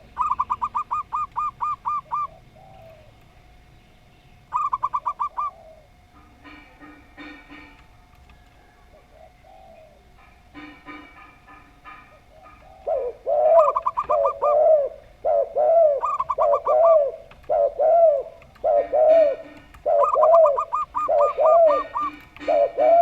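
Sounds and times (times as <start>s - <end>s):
low dove coos: 0.0s - 3.5s, 4.5s - 23.0s
quick high dove notes: 18.6s - 23.0s.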